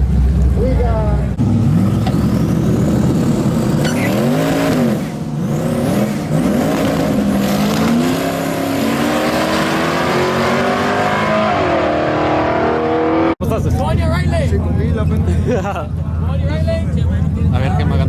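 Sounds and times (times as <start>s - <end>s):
truck engine revving: 0.0s - 13.4s.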